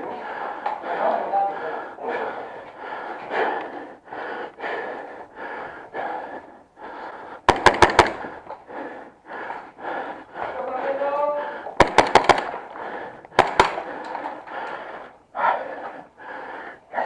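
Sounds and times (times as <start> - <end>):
heavy rhythmic breathing: 0.0 - 17.0
airsoft gun firing burst: 7.5 - 8.3, 11.8 - 12.6, 13.4 - 13.9.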